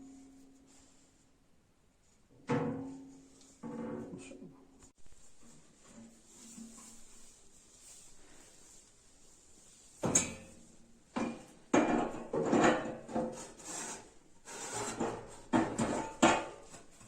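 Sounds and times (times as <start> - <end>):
metal scraping and rubbing: 11.8 - 16.3.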